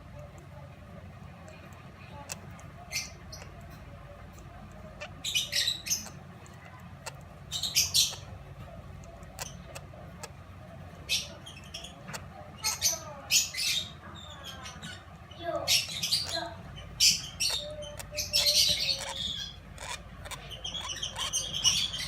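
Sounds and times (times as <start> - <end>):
bird chicks chirping: 0.0 - 22.0
faint clicks: 0.1 - 7.6.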